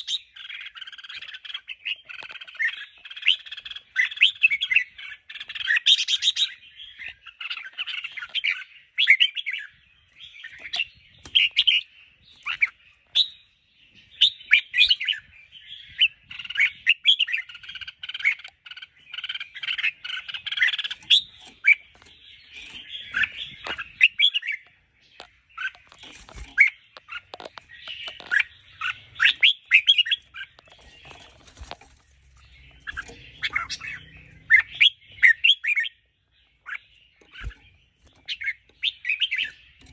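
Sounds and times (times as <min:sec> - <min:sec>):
bird chirping and calling: 0:00.0 - 0:39.9.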